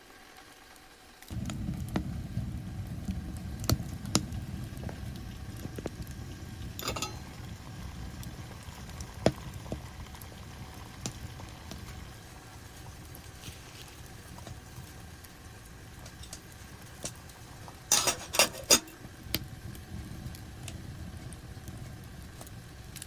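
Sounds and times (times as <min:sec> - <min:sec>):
liquid bubbling: 0:01.3 - 0:18.0.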